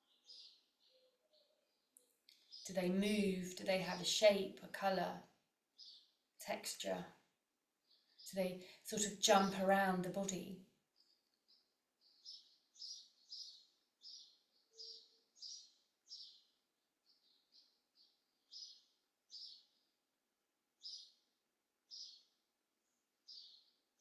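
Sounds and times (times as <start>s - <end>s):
small bird chirping: 0.0s - 2.9s, 5.8s - 6.2s, 7.8s - 9.0s, 10.9s - 20.0s, 20.8s - 24.0s.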